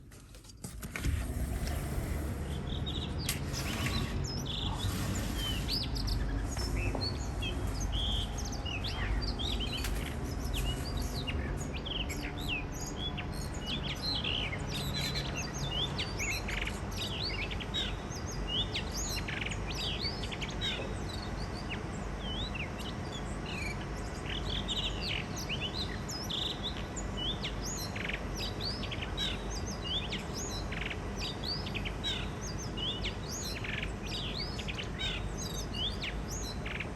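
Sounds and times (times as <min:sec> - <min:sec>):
low background rumble: 0:00.7 - 0:13.5.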